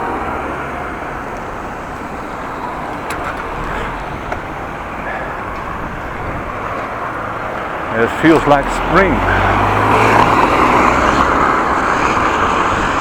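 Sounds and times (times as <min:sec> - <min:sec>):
wind buffeting microphone: 0:01.2 - 0:13.0.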